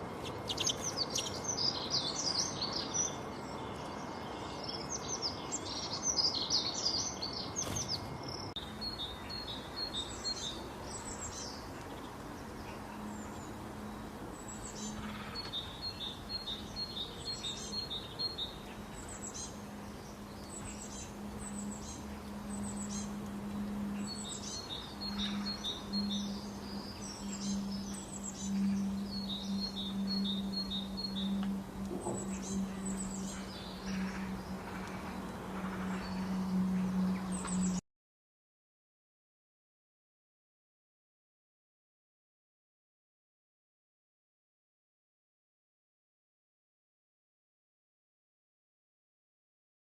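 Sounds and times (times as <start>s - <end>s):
small birds chirping: 0.0s - 37.8s
steady low hum: 7.2s - 37.8s.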